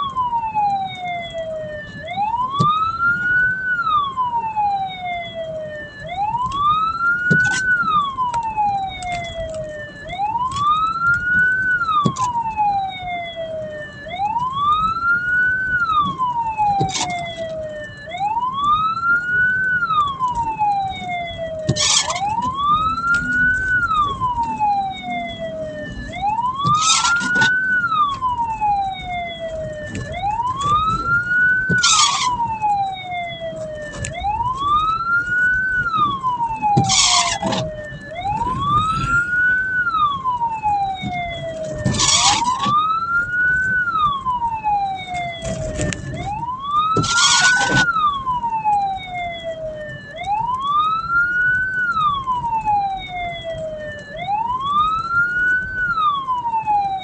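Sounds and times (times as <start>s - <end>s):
siren wailing: 0.0s - 57.0s.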